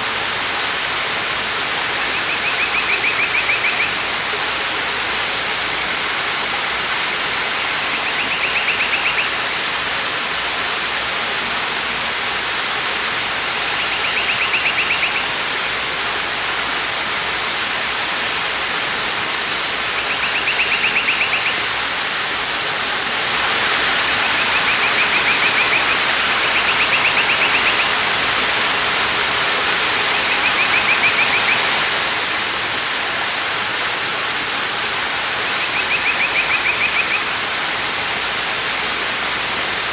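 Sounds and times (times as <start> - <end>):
waterfall rushing: 0.0 - 39.9
high-pitched trilling call: 7.6 - 9.4, 13.7 - 15.3, 20.0 - 21.7, 24.2 - 28.0, 35.6 - 37.3.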